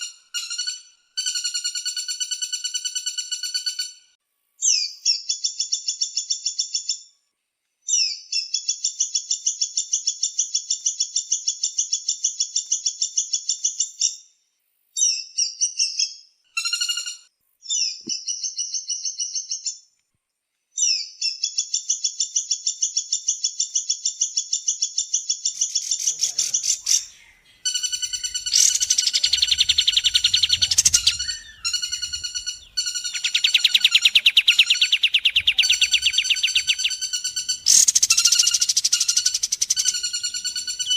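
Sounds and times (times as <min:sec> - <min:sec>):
high chattering bird calls: 0:25.4 - 0:40.9.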